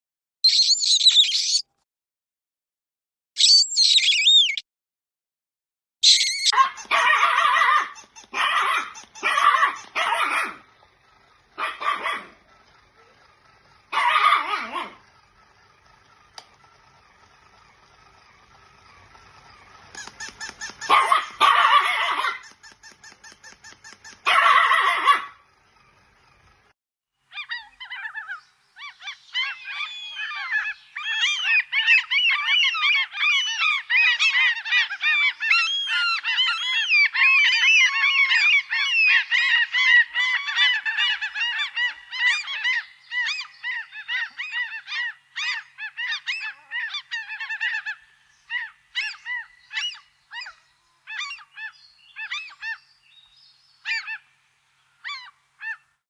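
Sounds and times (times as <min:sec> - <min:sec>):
geese honking: 0:29.1 - 0:50.0.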